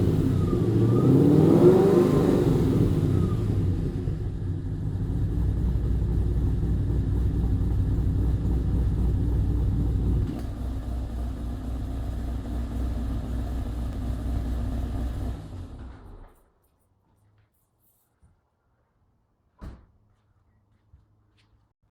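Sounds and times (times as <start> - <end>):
car exhaust at raised revs: 0.0 - 10.3.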